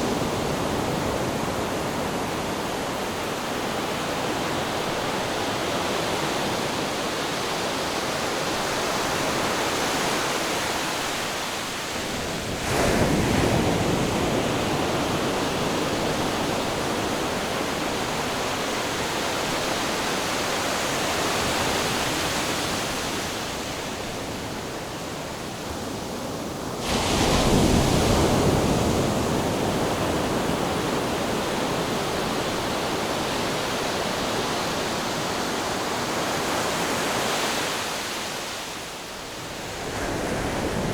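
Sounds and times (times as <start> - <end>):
ocean surf: 0.0 - 40.9
waves breaking: 26.7 - 38.7.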